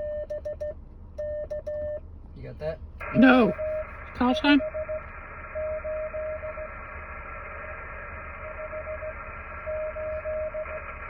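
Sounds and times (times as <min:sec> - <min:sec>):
morse code beeping tone: 0:03.0 - 0:05.0
radio band hiss: 0:03.0 - 0:11.0.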